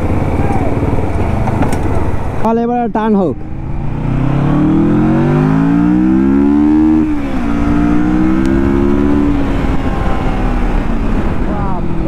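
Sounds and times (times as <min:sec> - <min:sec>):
car engine accelerating hard: 0:03.4 - 0:12.0.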